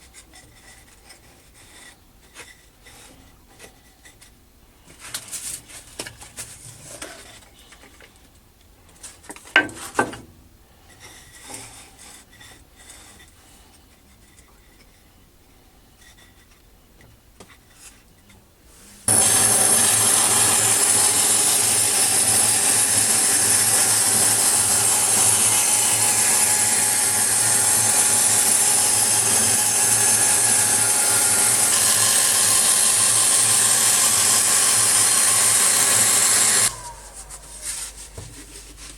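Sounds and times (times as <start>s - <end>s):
scroll saw cutting metal: 19.1s - 37.9s.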